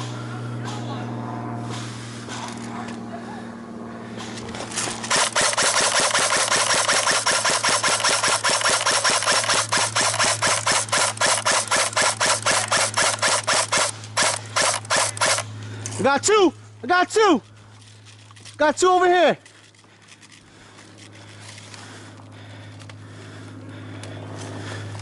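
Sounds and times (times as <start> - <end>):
airsoft gun firing full auto: 5.0 - 15.5.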